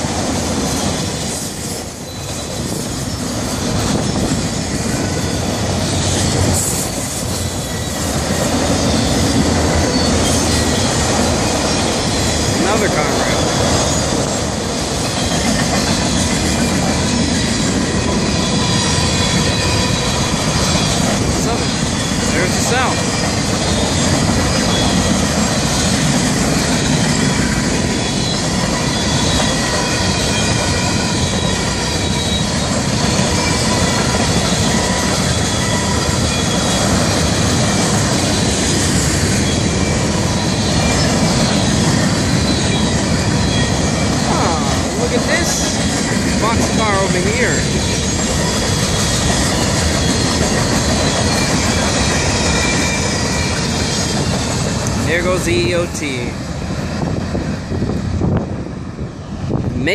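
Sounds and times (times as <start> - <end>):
freight train wheels on rails: 0.0 - 59.9
faint high wheel squeal: 9.9 - 11.9, 18.3 - 25.2, 26.8 - 36.9, 39.4 - 45.1, 46.9 - 54.4
high-pitched wheel squeal: 28.0 - 33.9.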